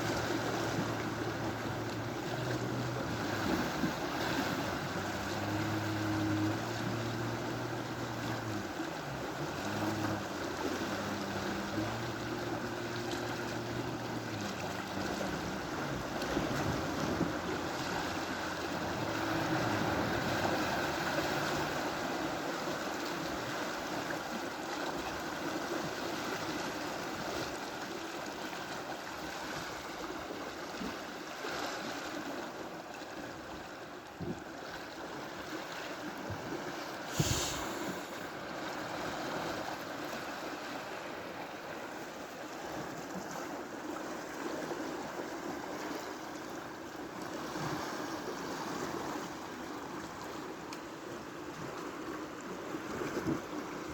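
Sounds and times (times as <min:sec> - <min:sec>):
low motor hum: 0:00.0 - 0:24.3
sea waves washing ashore: 0:00.0 - 0:53.9.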